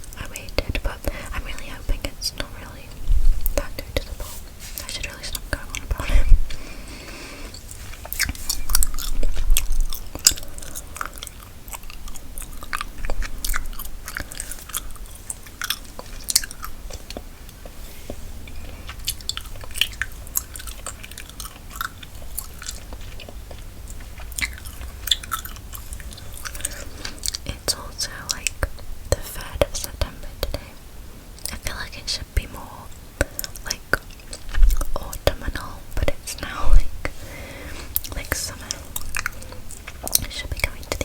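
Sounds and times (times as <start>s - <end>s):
gum chewing wet clicks: 7.5s - 17.8s, 18.4s - 30.7s, 33.2s - 36.6s, 37.9s - 41.0s.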